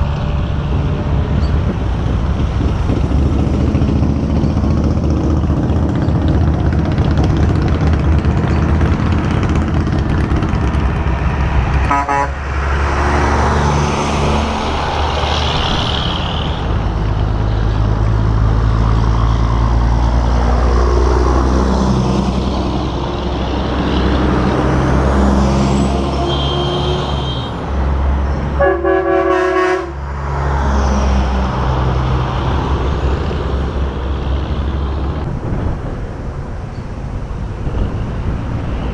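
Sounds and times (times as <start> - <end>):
trucks driving past: 0.0 - 38.9
air horn blasts: 11.9 - 12.4, 26.1 - 27.6, 28.6 - 30.0.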